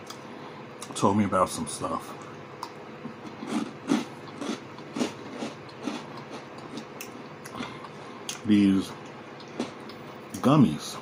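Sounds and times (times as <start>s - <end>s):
chewing with mouth smacks: 2.2s - 8.4s.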